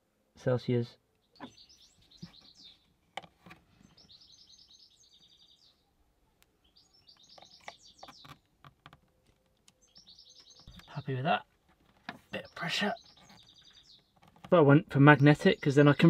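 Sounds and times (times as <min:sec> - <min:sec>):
bird chirping and trilling: 0:01.2 - 0:02.9, 0:03.8 - 0:05.9, 0:06.6 - 0:08.5, 0:09.7 - 0:11.4, 0:12.2 - 0:14.4.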